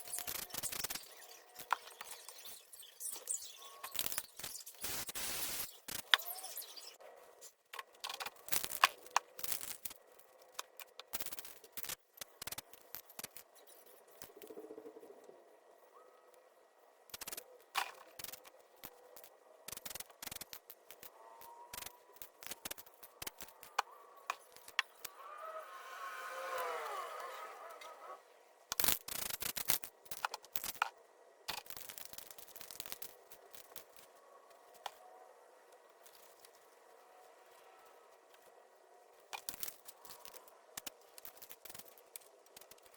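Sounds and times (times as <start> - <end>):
spray paint hisses: 0.0 - 7.0.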